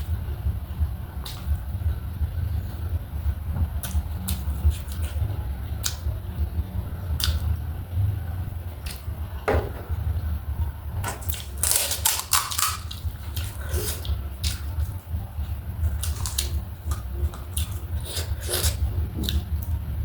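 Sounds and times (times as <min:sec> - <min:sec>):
low hum: 0:00.0 - 0:20.0
crunching crisp snack: 0:11.2 - 0:14.7, 0:15.9 - 0:18.8.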